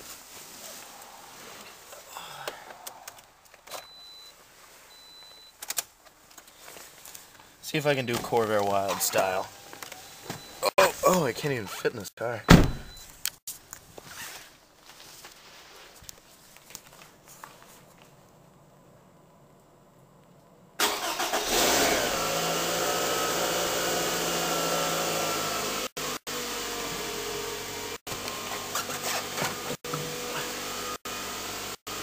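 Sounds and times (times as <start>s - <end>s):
faint shuffling: 0.0s - 3.5s, 6.1s - 9.5s, 13.5s - 18.4s
car engine starting and idling: 20.8s - 29.2s.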